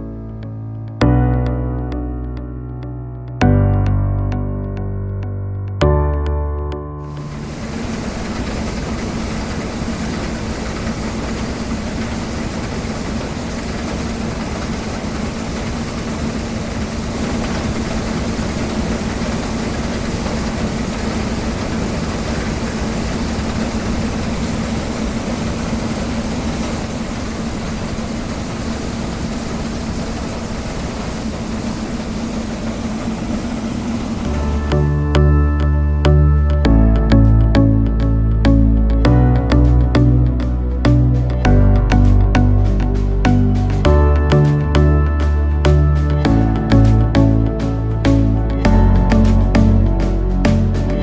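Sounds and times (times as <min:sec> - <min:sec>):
combine harvester running: 0:07.1 - 0:36.6.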